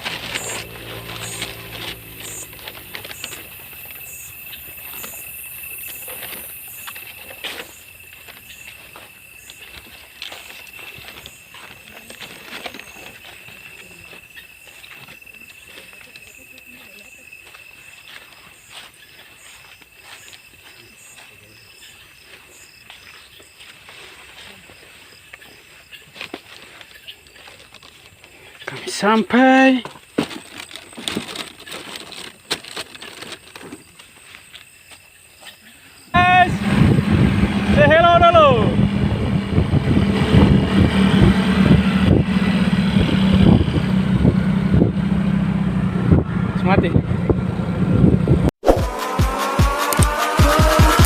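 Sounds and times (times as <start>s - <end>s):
low motor hum: 0.0s - 5.8s, 36.4s - 48.5s
insects trilling: 0.0s - 36.5s.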